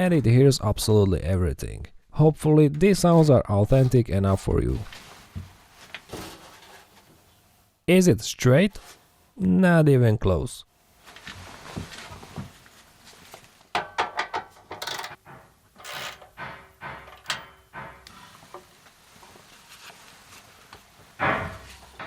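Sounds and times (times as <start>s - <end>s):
metal pipe clanking: 13.8s - 18.8s, 20.8s - 22.0s.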